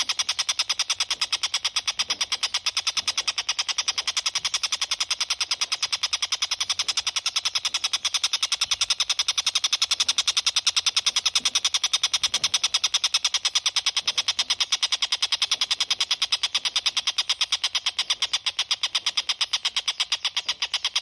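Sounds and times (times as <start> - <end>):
kingfisher calling in fast chatter: 0.0 - 21.0.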